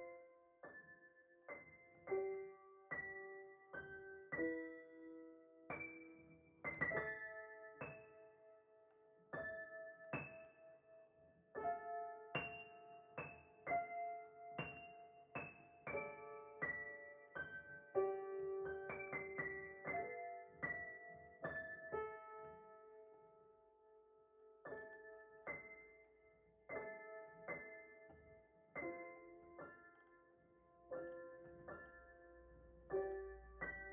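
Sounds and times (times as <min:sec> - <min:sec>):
slow solo piano melody: 0:00.0 - 0:33.9.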